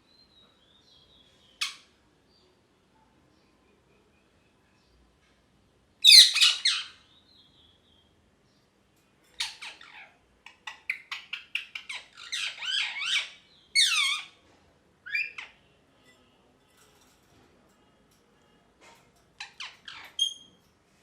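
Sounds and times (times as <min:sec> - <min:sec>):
parrot chirping and squawking: 0:06.0 - 0:07.0, 0:09.3 - 0:14.4, 0:15.0 - 0:15.6, 0:19.4 - 0:20.5.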